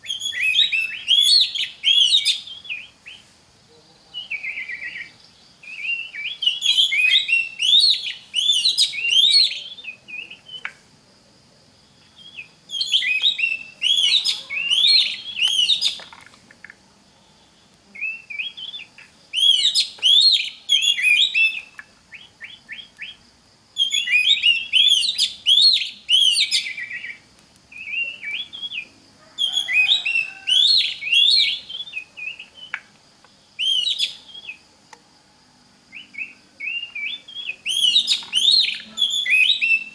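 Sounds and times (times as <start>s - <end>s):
bird singing whistles and chatter: 0.0s - 3.2s, 4.1s - 10.7s, 12.2s - 16.1s, 18.0s - 23.2s, 23.8s - 32.9s, 33.6s - 34.6s, 35.9s - 39.9s.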